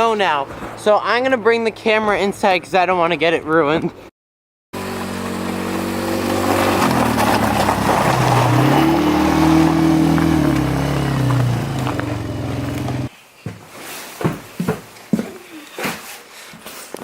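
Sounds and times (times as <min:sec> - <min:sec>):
quad engine revving: 0:04.8 - 0:13.1.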